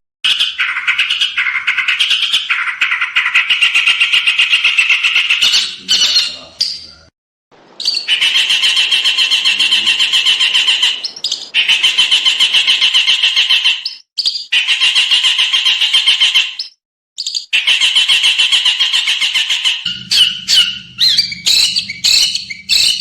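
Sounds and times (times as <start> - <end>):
songbird harsh trilled bursts: 7.8 - 13.2, 19.9 - 23.0.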